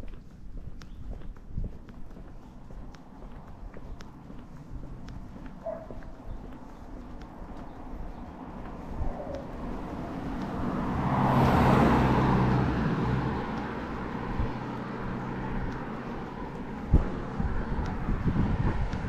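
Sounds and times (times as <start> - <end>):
car driving past: 7.8 - 17.7.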